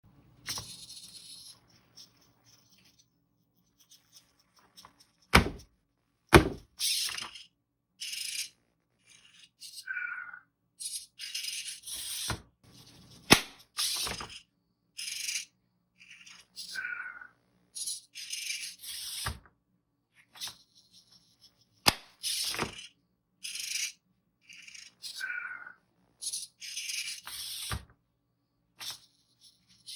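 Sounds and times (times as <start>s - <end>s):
robot parts knocking: 6.3s - 6.7s.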